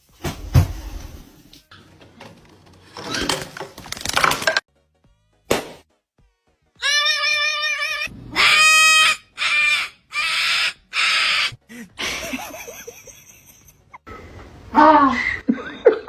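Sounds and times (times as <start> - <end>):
parrot screeching: 6.8 - 11.6.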